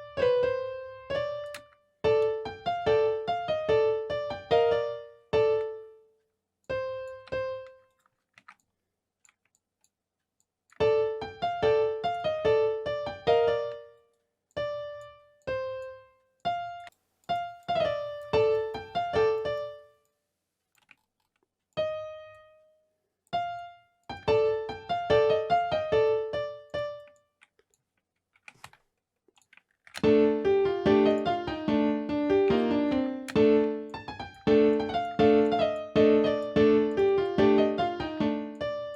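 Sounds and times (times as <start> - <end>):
looping keyboard pattern: 0.0 - 6.0, 14.6 - 19.9, 23.4 - 27.1, 30.0 - 38.9
piano-like keyboard melody: 0.0 - 6.1, 6.7 - 8.0, 10.8 - 20.0, 21.8 - 27.3, 30.0 - 38.9.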